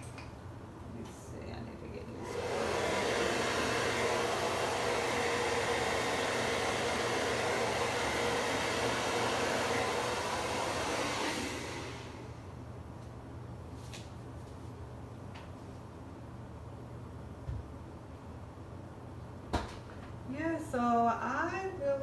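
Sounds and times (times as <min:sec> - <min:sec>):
hair dryer running: 0:02.0 - 0:12.6.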